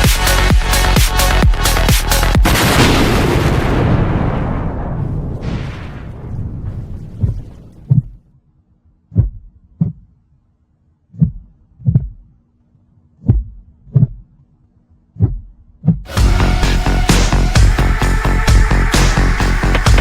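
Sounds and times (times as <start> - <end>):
rumbling boom: 2.4 - 8.2, 16.3 - 20.0
heartbeat thumps: 9.1 - 10.0, 11.2 - 12.2, 13.2 - 14.2, 15.2 - 16.5, 18.4 - 20.0.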